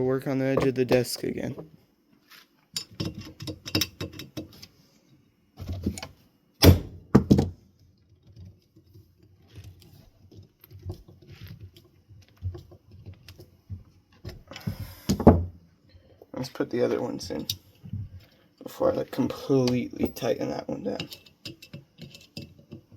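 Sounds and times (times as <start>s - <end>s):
metal parts clicking and clinking: 19.7s - 22.8s.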